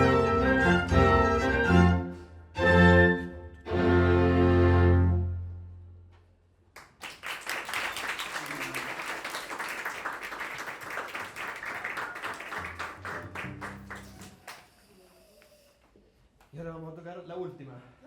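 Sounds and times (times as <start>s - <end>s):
audience clapping: 6.7s - 14.8s.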